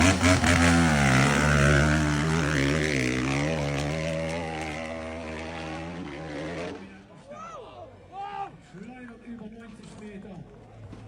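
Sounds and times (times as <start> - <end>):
monster truck engine running: 0.0 - 6.0.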